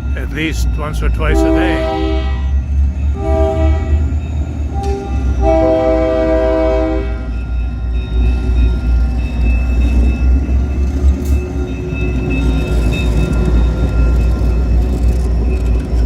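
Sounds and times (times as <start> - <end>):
passing train rumble: 0.0 - 16.0
train air horn blasts: 1.3 - 2.5, 3.2 - 4.0, 4.7 - 7.2.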